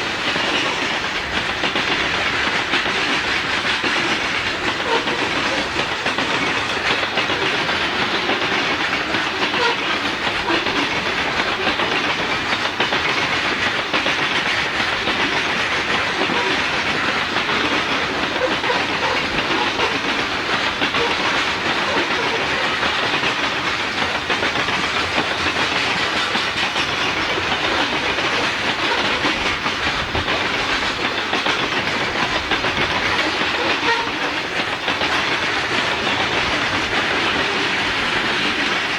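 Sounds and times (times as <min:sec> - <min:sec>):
train wheels on rails: 0:00.0 - 0:38.9.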